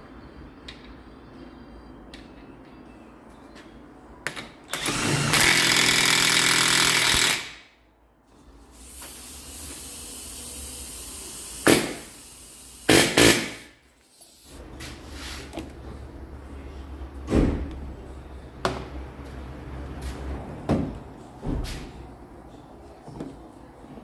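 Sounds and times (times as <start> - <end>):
power tool running: 4.8 - 7.5.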